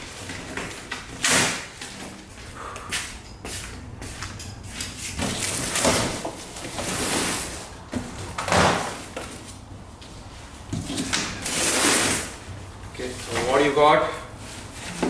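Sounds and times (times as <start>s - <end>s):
cardboard scraping and rustling: 5.1s - 9.6s.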